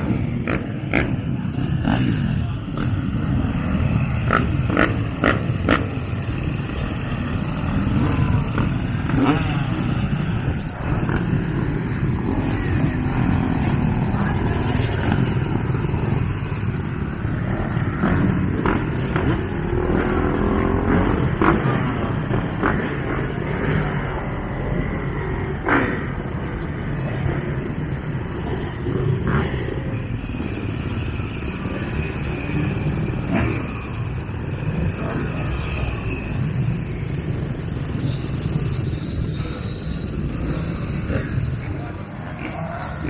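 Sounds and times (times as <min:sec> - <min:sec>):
motocross bikes revving: 0:00.0 - 0:43.0.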